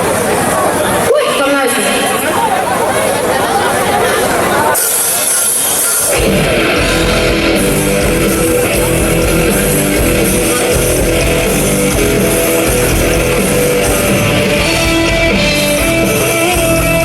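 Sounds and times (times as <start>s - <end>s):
rock band playing live: 0.0s - 17.0s
strummed electric guitar: 4.0s - 17.0s.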